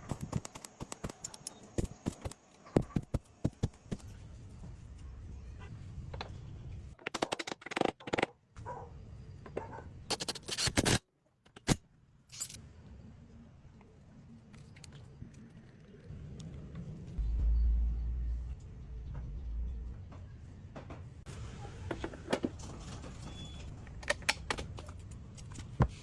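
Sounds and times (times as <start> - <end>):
low steady hum: 12.4 - 21.6.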